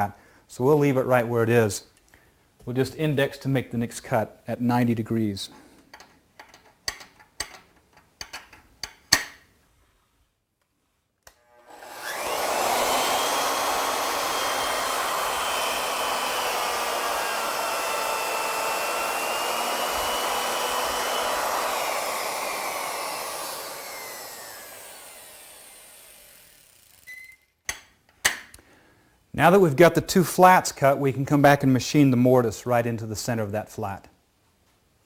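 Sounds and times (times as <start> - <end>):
router milling wood: 11.4 - 27.1.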